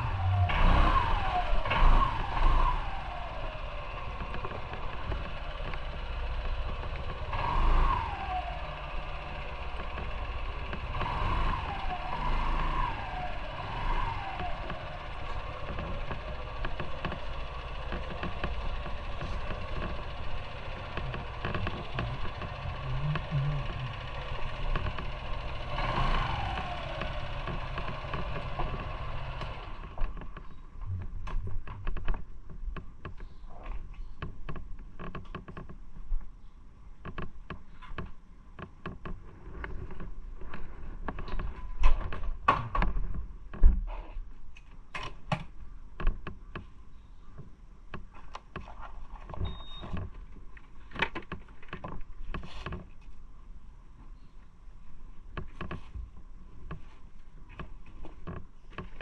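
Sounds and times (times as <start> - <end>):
motorcycle engine running: 0.0 - 31.1.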